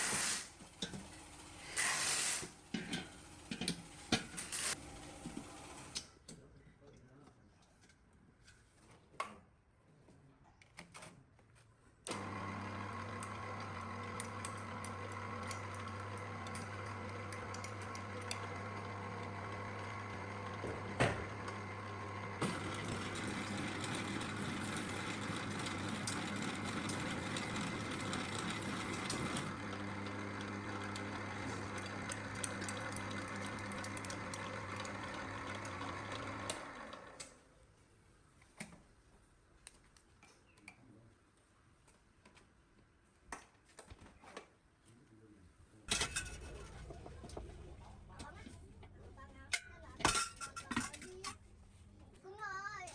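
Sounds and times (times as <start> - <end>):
electric mixer motor humming: 12.1 - 37.2.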